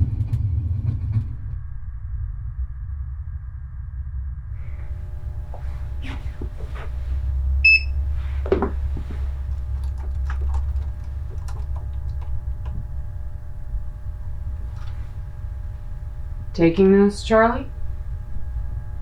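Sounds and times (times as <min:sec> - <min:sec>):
low rumble: 0:01.1 - 0:19.0
faint hum: 0:01.5 - 0:19.0
light clicks and knocks: 0:05.0 - 0:16.7
short electronic beep: 0:07.6 - 0:08.0.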